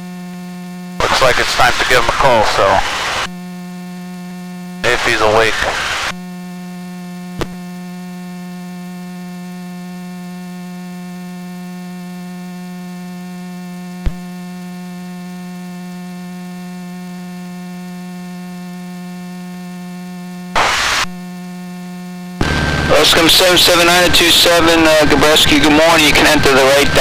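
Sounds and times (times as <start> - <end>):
burst of noise: 1.0 - 3.3, 4.8 - 6.2, 20.6 - 21.1, 22.4 - 23.7
electrical hum over intercom: 1.0 - 3.4, 4.7 - 6.2, 20.6 - 21.1, 22.4 - 27.0.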